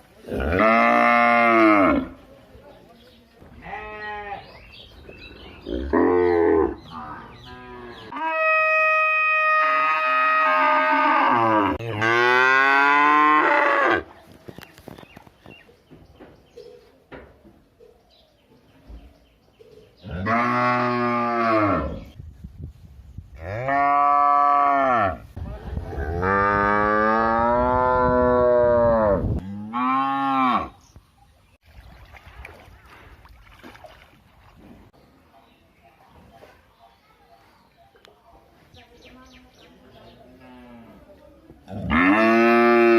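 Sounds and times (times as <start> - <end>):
cow mooing: 7.5 - 14.0, 26.0 - 30.8, 41.7 - 42.9.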